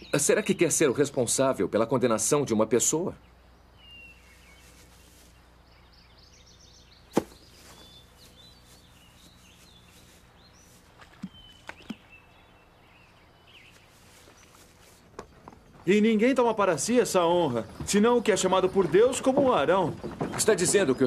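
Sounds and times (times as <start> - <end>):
faint bird chirps: 2.5 - 15.5.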